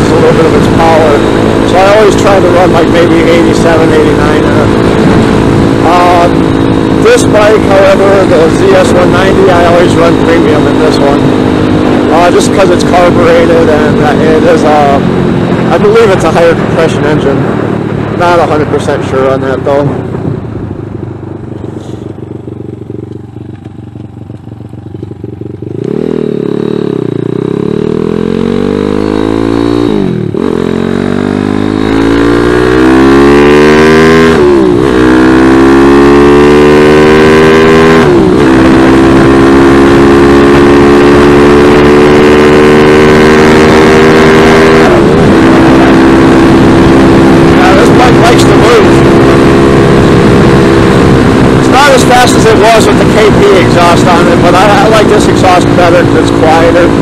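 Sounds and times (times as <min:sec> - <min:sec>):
motorcycle engine accelerating: 0:00.0 - 0:57.0
wind on microphone: 0:04.4 - 0:07.0, 0:19.8 - 0:23.7.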